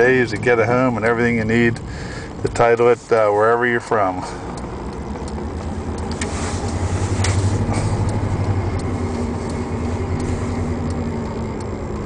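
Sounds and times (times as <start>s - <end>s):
road noise: 0.0s - 12.0s
truck engine droning: 0.0s - 12.0s.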